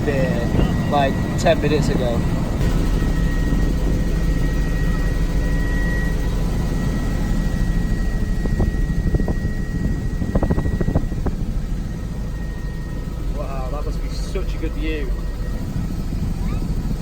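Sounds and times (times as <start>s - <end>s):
helicopter engine and rotor noise: 0.0s - 17.0s.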